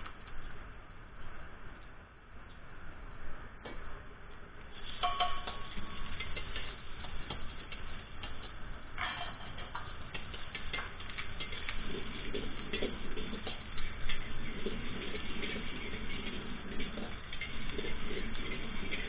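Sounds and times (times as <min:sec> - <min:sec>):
utensils and dishes clinking: 0:04.8 - 0:07.1, 0:09.0 - 0:14.4
ringing clink: 0:05.0 - 0:05.8.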